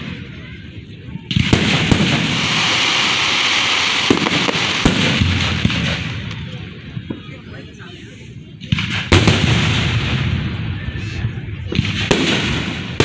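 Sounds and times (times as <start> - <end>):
fireworks bangs: 0.0 - 7.7, 8.6 - 13.0
fireworks crackling hiss: 1.2 - 11.2.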